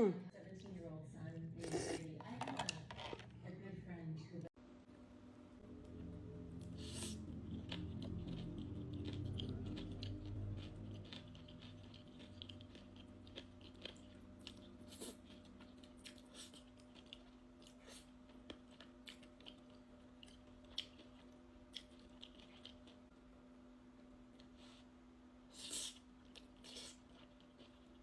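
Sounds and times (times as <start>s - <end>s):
faint steady hum: 0.2s - 28.0s
close-up wet chewing: 6.6s - 23.1s, 25.5s - 28.0s.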